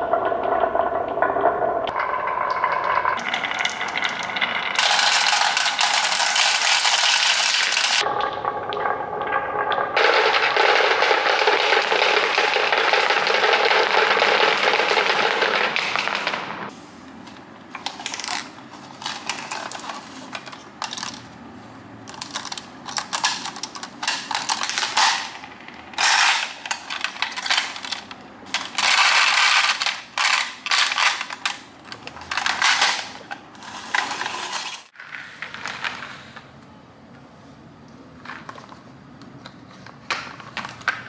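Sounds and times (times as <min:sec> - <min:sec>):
toy parts clattering: 0:17.8 - 0:21.3, 0:22.1 - 0:25.4, 0:26.0 - 0:36.2.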